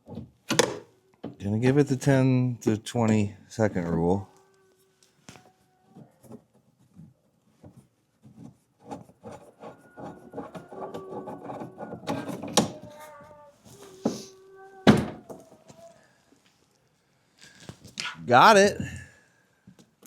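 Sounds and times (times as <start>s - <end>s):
child whimpering: 4.3s - 6.4s, 9.5s - 16.2s.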